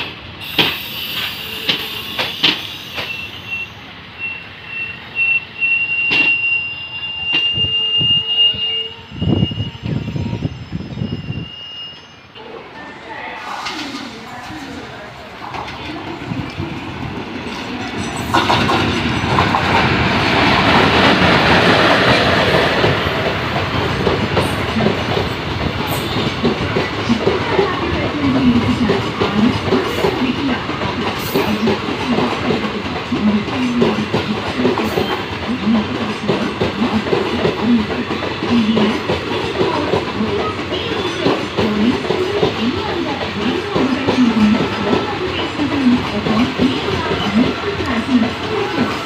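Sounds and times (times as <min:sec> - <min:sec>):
train wheels clicking over rail joints: 0:00.0 - 0:03.4, 0:13.4 - 0:49.0
electric locomotive passing: 0:00.0 - 0:49.0.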